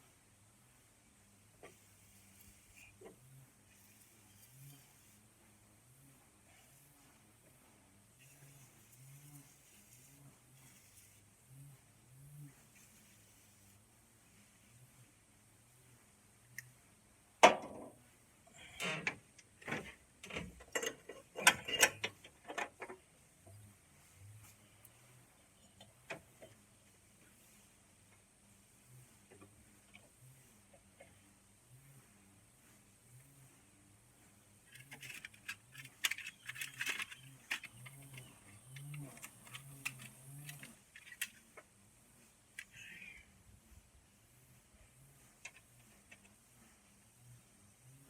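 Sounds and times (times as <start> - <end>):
clicks knocks and scraping rattles: 18.6 - 23.6, 34.6 - 41.7.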